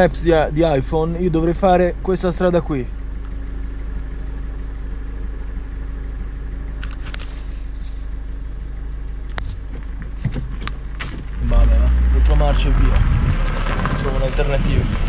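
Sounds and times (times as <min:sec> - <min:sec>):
car engine humming: 0:00.0 - 0:15.0.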